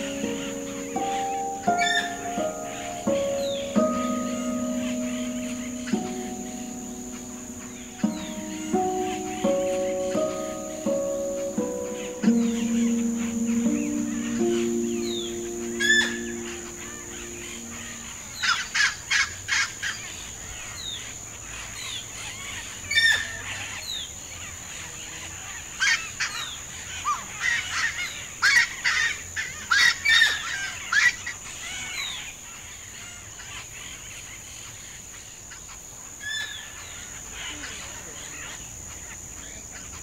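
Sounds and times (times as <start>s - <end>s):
wetland birds calling: 0.0s - 18.1s.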